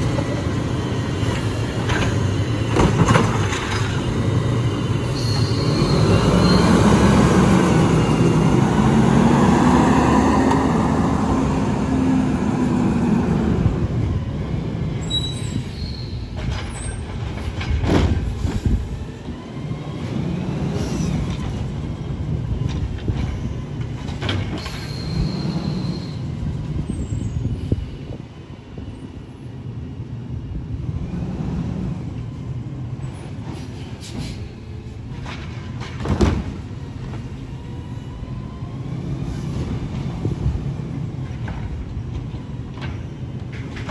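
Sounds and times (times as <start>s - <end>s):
garbage truck diesel engine: 0.0s - 27.3s, 30.5s - 43.9s
high squeals: 4.0s - 9.0s, 15.0s - 16.9s, 24.6s - 26.3s.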